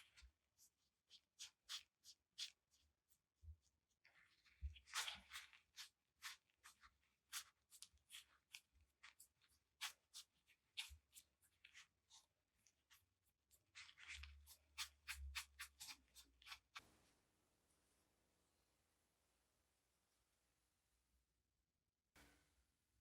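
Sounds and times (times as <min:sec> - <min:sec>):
faint scratching and light clicks: 0:00.0 - 0:17.2.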